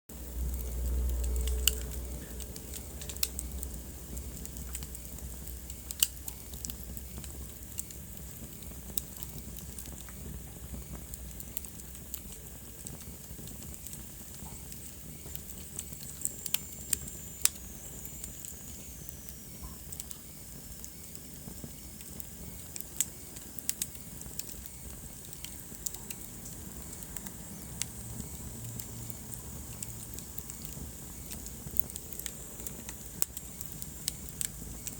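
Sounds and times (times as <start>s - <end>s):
wood fire crackling and popping: 0.1s - 34.9s.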